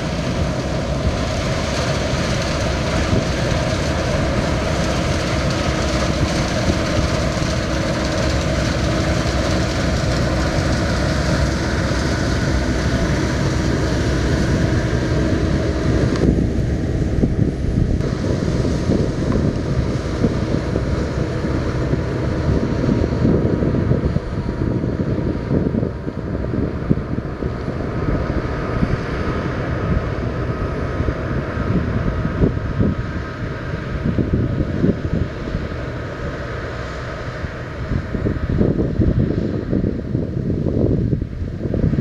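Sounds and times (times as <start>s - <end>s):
harvest machinery running: 0.0s - 39.5s
wind buffeting microphone: 0.0s - 42.0s.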